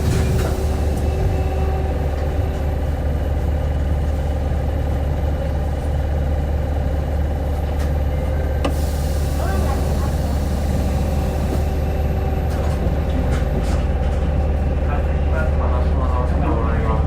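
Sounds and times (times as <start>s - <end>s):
bus engine humming: 0.0s - 17.0s.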